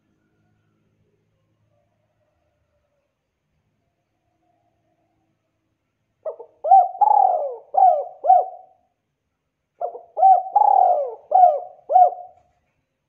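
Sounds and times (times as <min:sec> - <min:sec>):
dove cooing: 0:06.3 - 0:08.8, 0:09.8 - 0:12.5.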